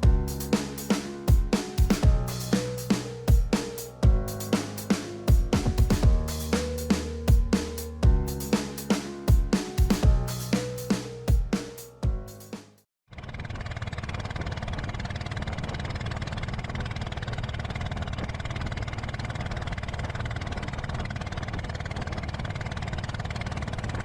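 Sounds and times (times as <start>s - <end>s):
electronic music with drums: 0.0s - 12.8s
low rumbling noise: 1.8s - 8.5s.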